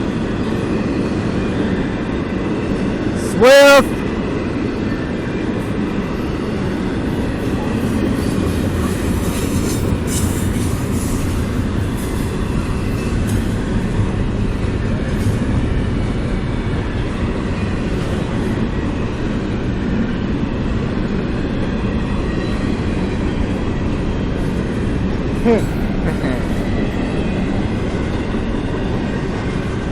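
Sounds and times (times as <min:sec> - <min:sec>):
train wheels rumbling on rail: 0:00.0 - 0:29.9.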